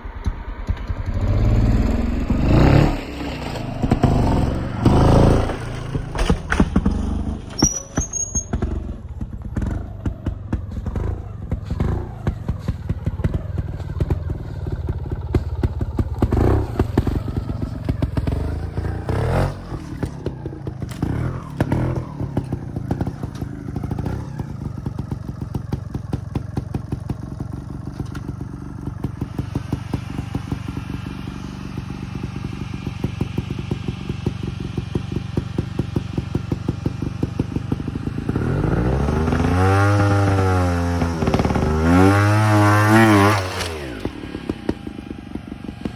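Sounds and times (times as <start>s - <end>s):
knocks and clatter: 0.0s - 28.6s
motorcycle engine chugging: 0.0s - 45.9s.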